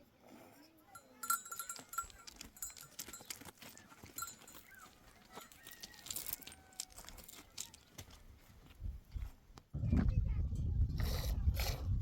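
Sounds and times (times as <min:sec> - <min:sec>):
neck bell tinkling: 0:00.9 - 0:06.4
hooves knocking and clicking: 0:01.0 - 0:09.7.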